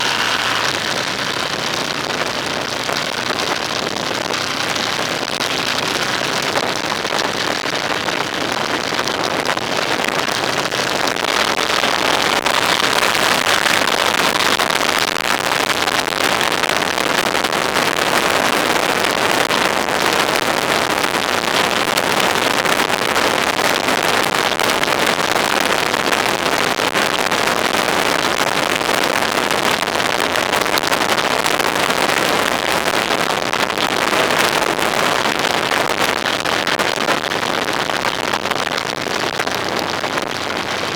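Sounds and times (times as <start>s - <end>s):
faint engine tone: 0.0s - 2.7s
vehicle road noise: 0.0s - 9.0s.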